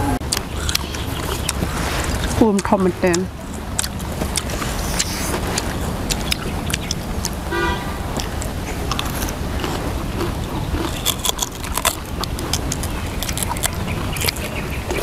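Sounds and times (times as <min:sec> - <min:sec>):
low rumble: 0:00.0 - 0:15.0
biting and chewing crunchy fruit: 0:00.1 - 0:15.0
horn-like toot: 0:07.5 - 0:08.0.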